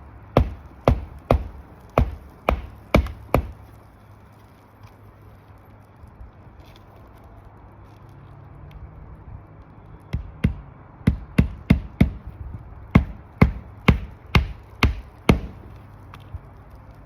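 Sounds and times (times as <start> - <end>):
hammer striking roofing nails: 0.4 - 3.6, 10.1 - 15.7.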